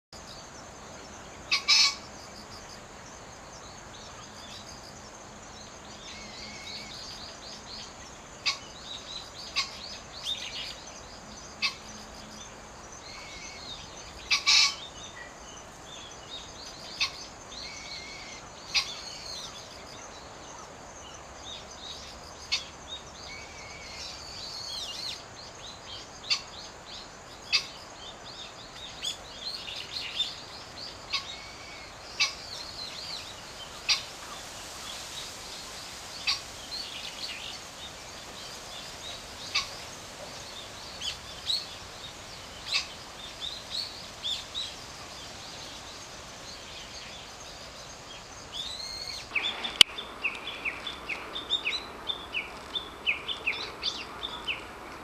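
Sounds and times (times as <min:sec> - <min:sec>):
steady background hiss: 0:00.2 - 0:55.0
wild birds chirping and whistling: 0:00.2 - 0:55.0
loud sharp bird calls: 0:01.5 - 0:02.1, 0:13.1 - 0:15.0.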